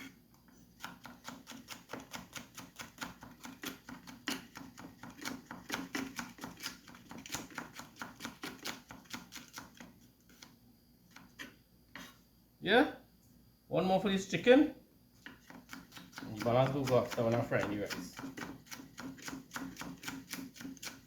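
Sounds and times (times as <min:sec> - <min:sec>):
knife chopping on a cutting board: 0:00.8 - 0:09.8, 0:15.2 - 0:21.0.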